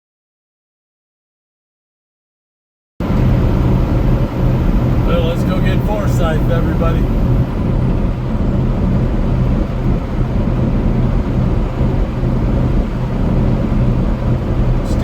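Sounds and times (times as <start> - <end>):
truck cab road and engine rumble: 3.0 - 15.0.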